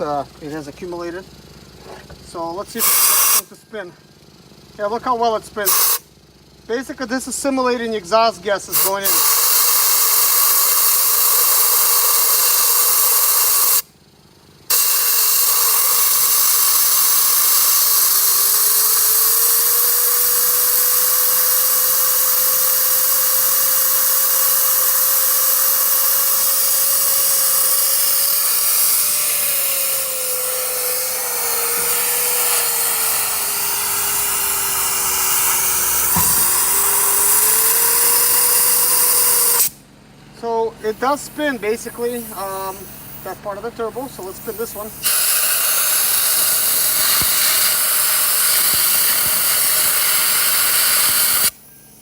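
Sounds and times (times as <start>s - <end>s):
compressed air hissing: 2.8s - 3.6s, 5.6s - 6.1s, 8.7s - 13.9s, 14.7s - 39.8s, 40.8s - 52.0s
turbocharger whistle: 2.8s - 3.6s, 5.6s - 6.1s, 8.7s - 13.9s, 14.7s - 39.8s, 44.1s - 52.0s.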